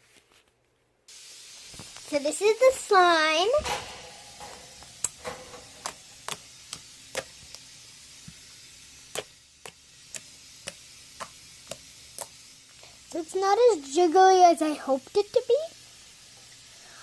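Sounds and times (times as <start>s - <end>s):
slime clicking and popping: 9.1s - 12.4s.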